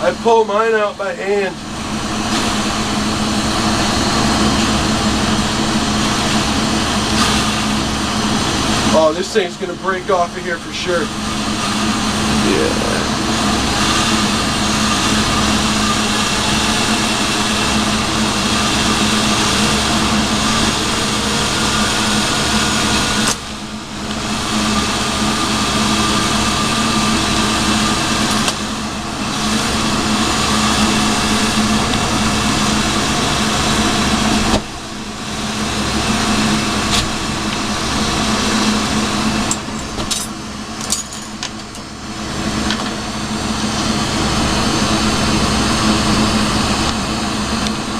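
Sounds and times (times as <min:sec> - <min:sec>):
shop equipment hum: 0:00.0 - 0:47.9
bench torch hissing: 0:00.5 - 0:40.0.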